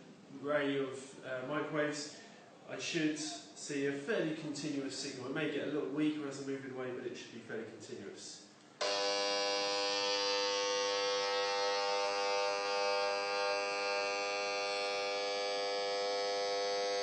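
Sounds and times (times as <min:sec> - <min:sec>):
steady electronic buzz: 0:08.8 - 0:17.0.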